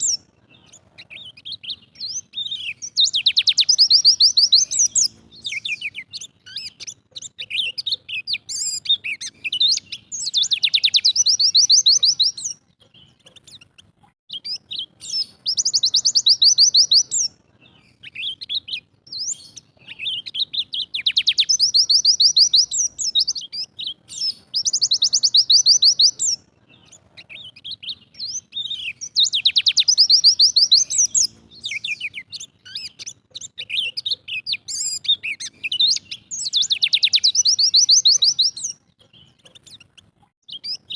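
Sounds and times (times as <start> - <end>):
fast bird trill: 0.0 - 40.9
white-eye bird singing: 0.0 - 40.9.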